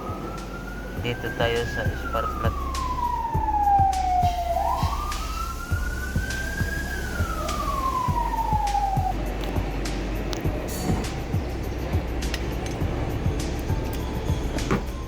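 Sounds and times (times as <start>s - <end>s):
siren wailing: 0.0s - 15.0s
steady low hum: 0.0s - 15.0s
soft regular knocks: 9.4s - 15.0s.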